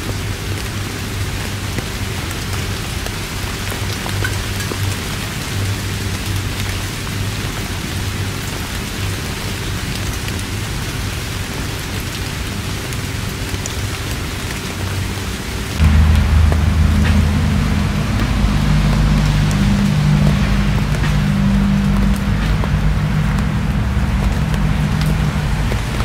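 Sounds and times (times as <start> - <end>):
heavy rain falling: 0.0 - 26.0
low rumble: 15.8 - 26.0.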